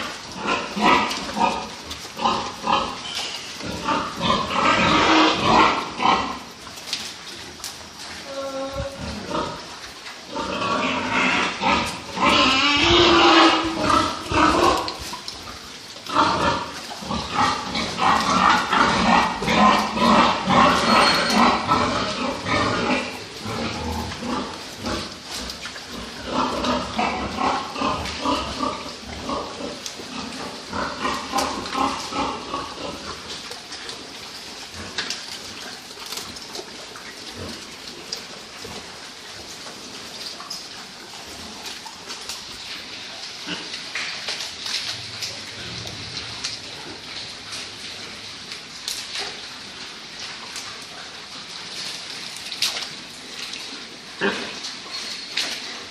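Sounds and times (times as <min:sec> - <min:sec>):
pigs squealing: 0:00.0 - 0:06.6, 0:08.3 - 0:35.5.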